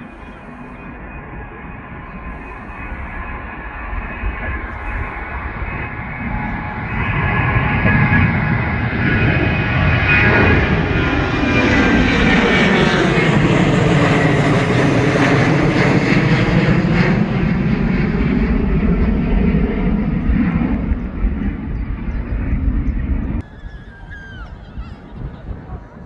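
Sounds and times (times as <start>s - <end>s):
airliner engines roaring: 0.0s - 26.0s.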